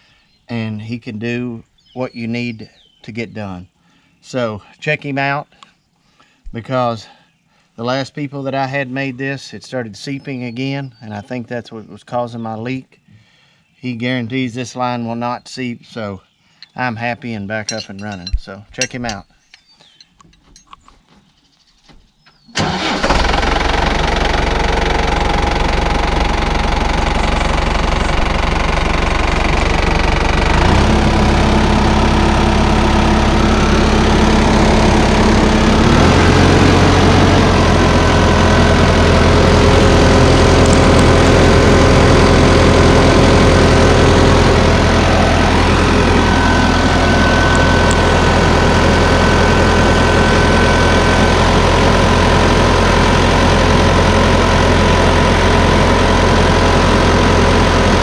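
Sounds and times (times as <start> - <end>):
tractor diesel engine running: 17.3 - 19.2, 22.6 - 58.0.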